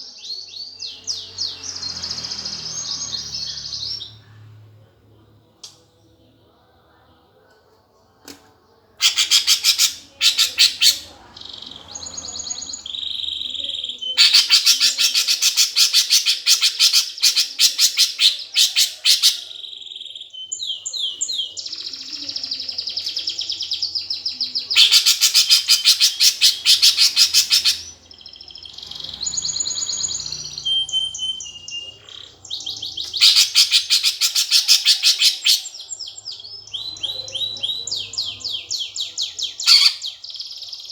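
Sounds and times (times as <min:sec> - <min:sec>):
sparrows chattering: 0:00.0 - 0:04.3, 0:09.0 - 0:40.9
whistled and chipped bird notes: 0:24.8 - 0:40.9.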